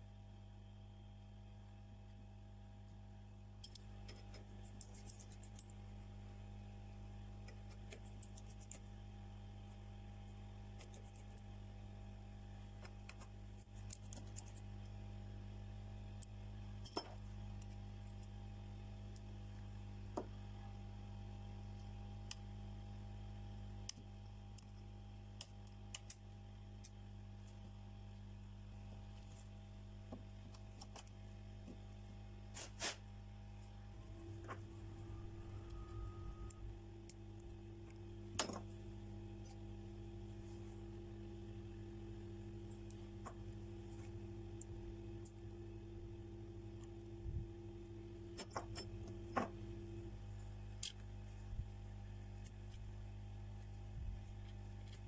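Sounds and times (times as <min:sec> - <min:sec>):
low electrical hum: 0:00.0 - 0:55.0
small tools clicking and tapping: 0:12.8 - 0:14.9.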